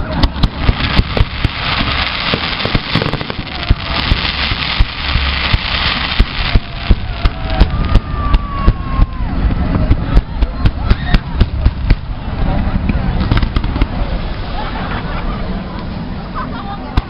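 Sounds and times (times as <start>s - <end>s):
fireworks crackling: 0.0s - 15.9s
firework shell bursts and bangs: 0.2s - 8.1s.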